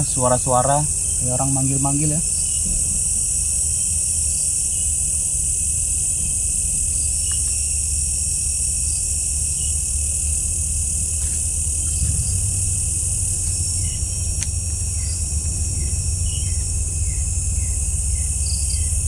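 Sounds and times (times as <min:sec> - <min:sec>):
crickets trilling: 0:00.0 - 0:19.0
faint insect chirps: 0:00.0 - 0:19.0
steady low rumble: 0:00.0 - 0:19.0.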